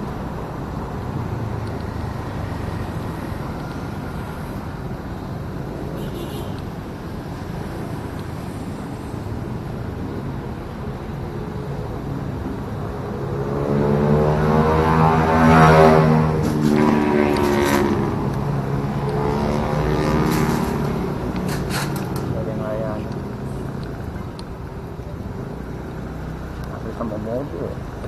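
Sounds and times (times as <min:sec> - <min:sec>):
motorcycle road noise: 0:00.0 - 0:28.0
wind rushing over microphone: 0:06.6 - 0:28.0.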